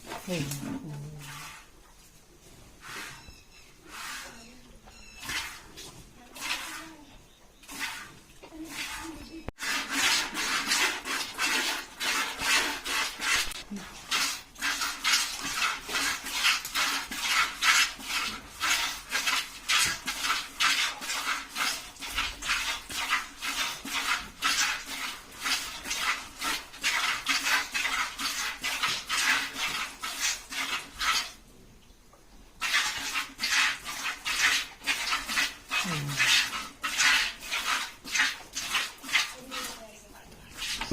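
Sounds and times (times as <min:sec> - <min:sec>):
milk squirting into a pail: 0:07.6 - 0:31.4, 0:32.6 - 0:39.8, 0:40.5 - 0:40.9.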